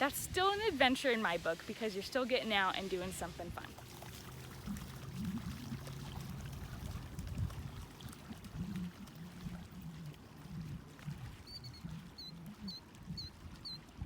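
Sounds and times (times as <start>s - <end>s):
low steady rumble: 0.0s - 14.0s
water sloshing and trickling: 0.0s - 14.0s.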